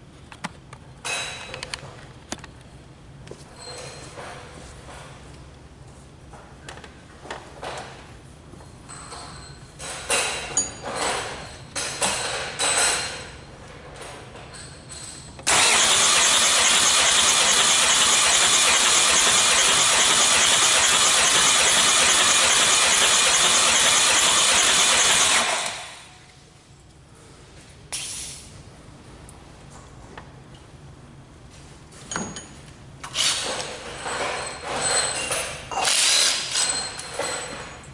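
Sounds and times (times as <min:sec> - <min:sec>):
engine starter whirring: 0:15.5 - 0:26.1.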